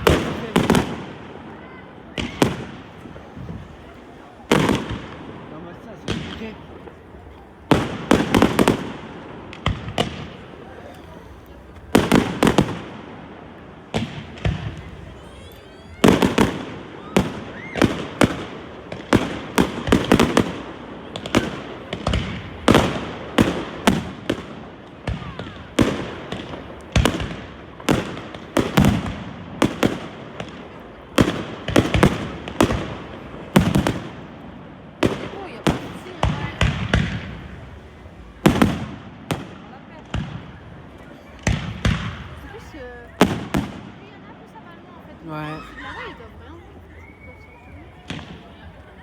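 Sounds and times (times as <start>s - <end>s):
fireworks bangs with echo: 0.0s - 49.0s.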